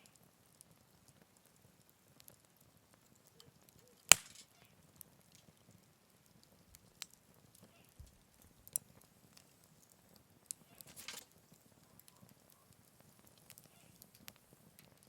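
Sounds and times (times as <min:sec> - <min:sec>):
campfire crackling: 0:00.0 - 0:15.0
sharp fire pops: 0:04.0 - 0:15.0.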